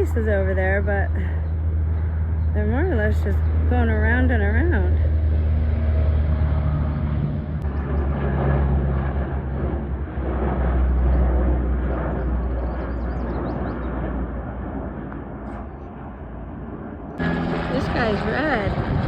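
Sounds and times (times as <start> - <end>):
helicopter rotor rumble: 0.0 - 19.0.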